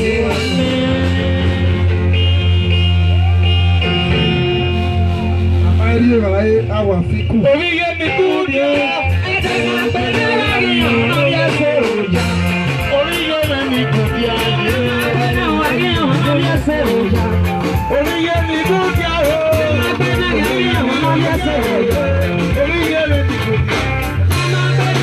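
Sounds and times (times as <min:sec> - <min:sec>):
person singing: 0:00.0 - 0:02.1, 0:07.4 - 0:25.0
live band music: 0:00.0 - 0:25.0.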